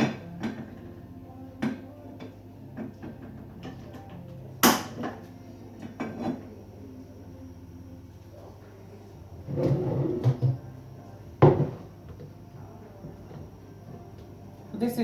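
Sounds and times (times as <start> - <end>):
pots and utensils clattering: 0.0 - 0.8, 5.8 - 6.6.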